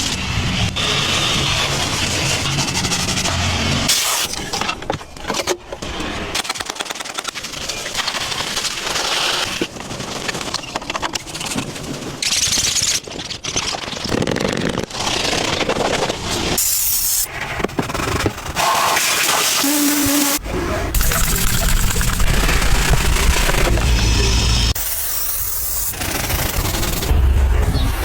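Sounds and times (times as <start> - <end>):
vacuum cleaner sucking up dirt: 18.6 - 20.4.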